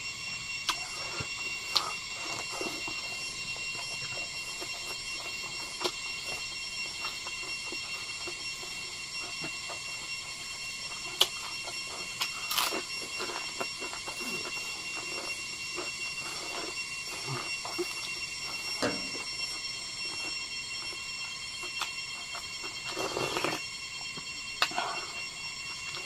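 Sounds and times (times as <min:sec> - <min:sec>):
high-pitched ringing drone: 0:00.0 - 0:26.0
person chewing: 0:03.8 - 0:08.4, 0:09.2 - 0:19.3, 0:21.6 - 0:23.6.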